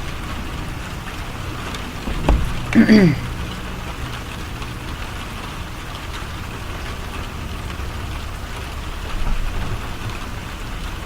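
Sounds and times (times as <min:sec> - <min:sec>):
heavy rain pouring: 0:00.0 - 0:11.0
low thud: 0:02.0 - 0:02.7.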